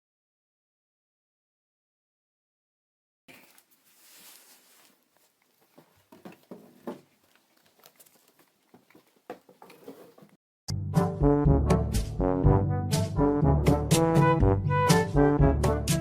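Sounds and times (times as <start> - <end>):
light taps and scuffles: 3.3 - 10.4
loud brass music: 11.0 - 16.0.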